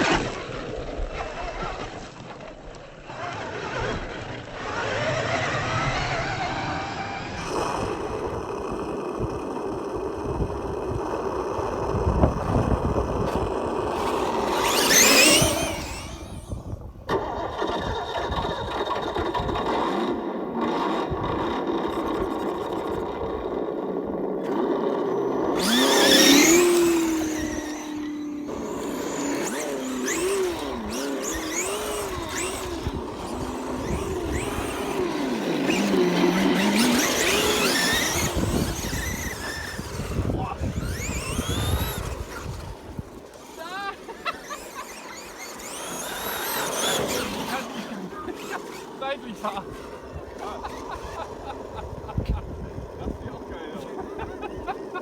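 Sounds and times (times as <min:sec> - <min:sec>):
electric motor whine: 0:03.1 - 0:18.0, 0:18.6 - 0:55.0.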